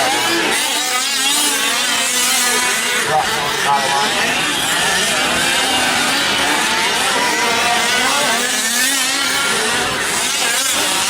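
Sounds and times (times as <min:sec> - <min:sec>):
small two-stroke engines buzzing: 0:00.0 - 0:11.0.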